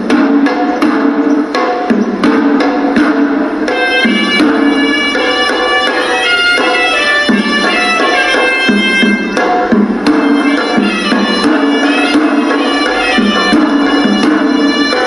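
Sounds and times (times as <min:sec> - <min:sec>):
fast drum strokes: 0:00.0 - 0:15.0
reedy pipe melody: 0:03.6 - 0:15.0.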